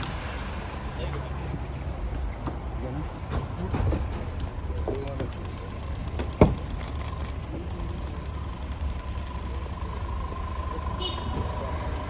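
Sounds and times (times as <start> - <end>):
vehicle engine idling: 0.0 - 12.0
thin constant high tone: 5.3 - 12.0.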